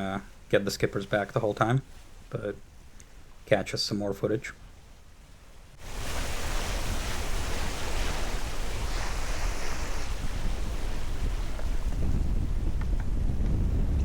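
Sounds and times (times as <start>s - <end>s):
water rushing past hull: 5.6s - 12.8s
wind buffeting microphone: 5.8s - 14.0s.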